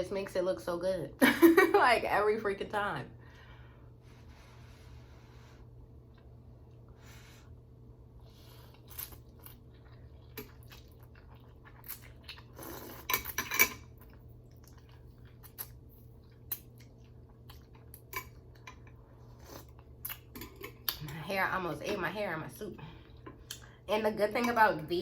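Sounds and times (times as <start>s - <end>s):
chewing: 8.6s - 21.2s.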